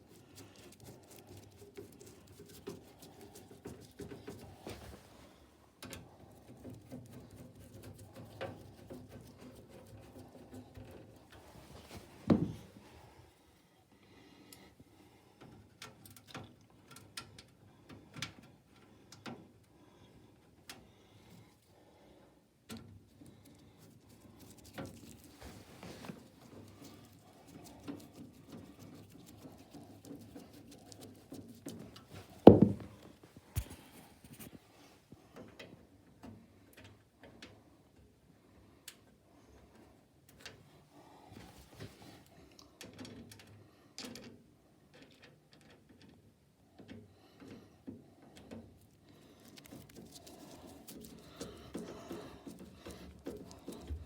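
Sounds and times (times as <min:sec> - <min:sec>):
light clicks and rustling: 0:15.4 - 0:19.6, 0:41.4 - 0:54.0
loud thump: 0:32.5 - 0:32.9
sharp knock: 0:32.5 - 0:32.9.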